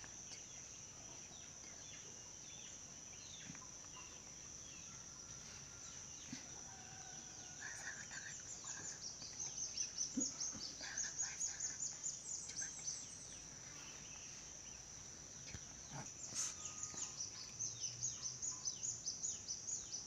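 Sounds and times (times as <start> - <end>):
steady high hiss: 0.0 - 20.0
bird chirps: 7.0 - 20.0.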